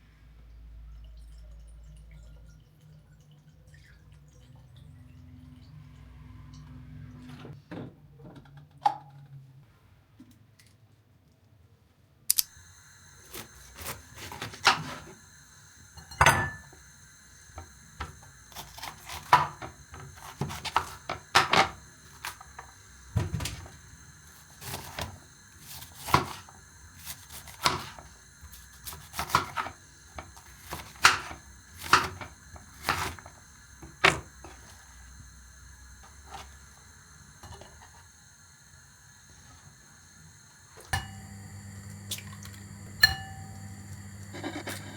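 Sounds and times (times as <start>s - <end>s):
faint steady hum: 12.4s - 44.9s
dishes and utensils clinking: 16.0s - 16.8s.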